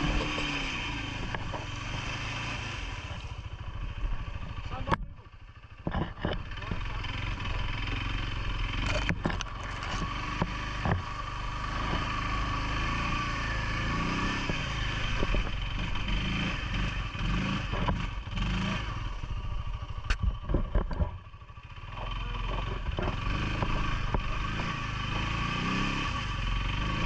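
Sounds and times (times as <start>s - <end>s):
atv engine running: 0.0s - 27.0s
knocks and clatter: 5.7s - 8.0s, 8.8s - 11.2s, 20.1s - 21.3s, 21.9s - 24.3s.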